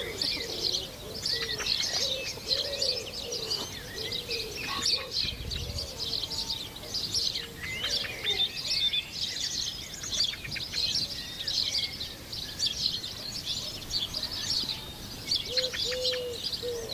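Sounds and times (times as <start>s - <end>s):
faint dove coo: 0.0s - 8.7s, 13.6s - 16.9s
small birds chirping: 0.0s - 16.9s.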